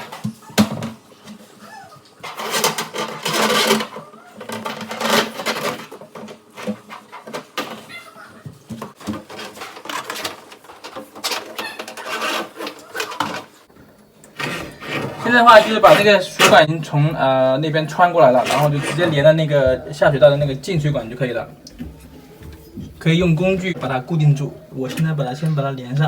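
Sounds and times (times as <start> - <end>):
scraping and rustling: 0.0 - 13.7, 14.3 - 26.0.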